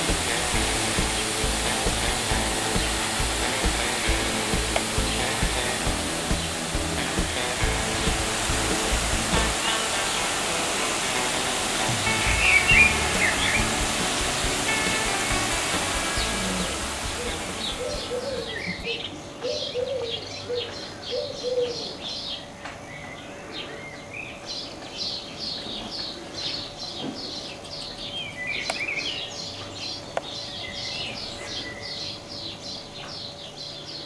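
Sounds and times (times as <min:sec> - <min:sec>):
small birds chirping: 0:00.0 - 0:10.5, 0:12.0 - 0:22.4.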